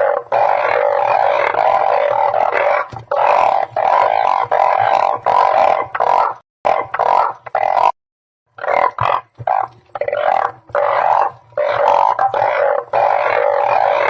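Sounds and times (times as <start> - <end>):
frogs calling: 0.0 - 14.0.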